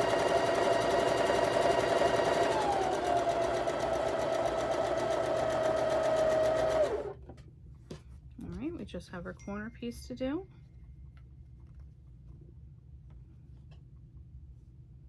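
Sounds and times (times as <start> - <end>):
sewing machine stitching: 0.0 - 7.2.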